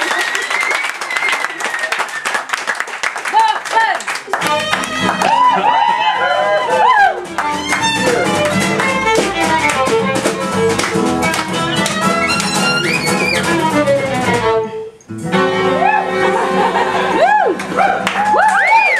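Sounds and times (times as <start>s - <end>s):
violin: 4.4s - 17.8s
strummed and plucked guitars: 4.4s - 18.3s.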